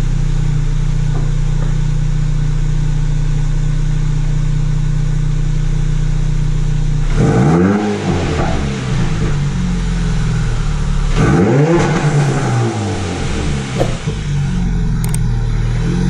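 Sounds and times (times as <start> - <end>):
car engine idling: 0.0 - 16.0
engine revving: 6.9 - 16.0.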